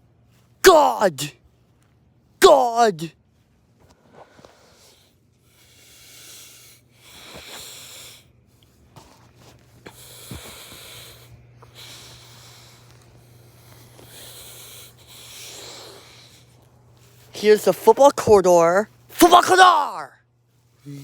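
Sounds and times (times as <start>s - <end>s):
faint low hum: 0.0s - 21.0s
heavy breathing: 4.0s - 8.3s, 9.8s - 17.3s.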